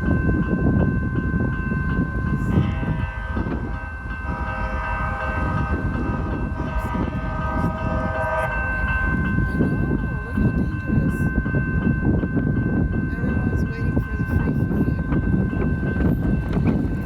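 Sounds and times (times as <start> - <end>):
light-rail train rumbling: 0.0 - 17.0
train horn held: 4.3 - 8.8.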